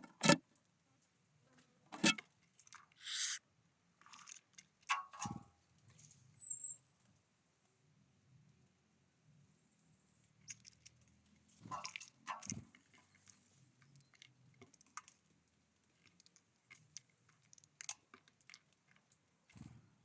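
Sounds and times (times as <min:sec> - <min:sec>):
birds pecking seed: 0:03.0 - 0:03.4.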